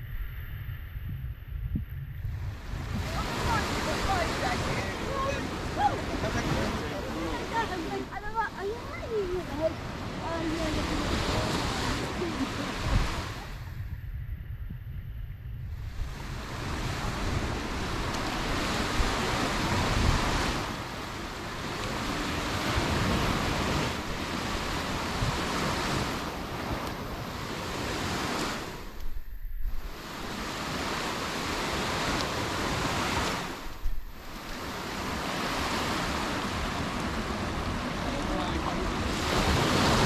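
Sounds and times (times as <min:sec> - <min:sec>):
wind rumbling on microphone: 0:00.0 - 0:40.0
sea waves breaking on beach: 0:02.4 - 0:13.8, 0:15.8 - 0:40.0.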